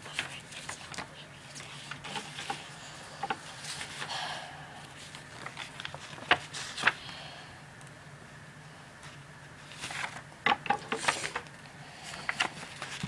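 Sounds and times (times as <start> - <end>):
paper rustling: 0.0 - 4.2, 4.8 - 7.1, 9.0 - 13.0.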